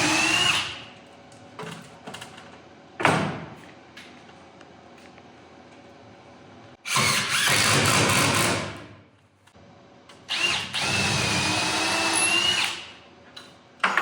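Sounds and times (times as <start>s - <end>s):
power drill boring into wood: 6.9s - 8.5s, 10.3s - 12.8s.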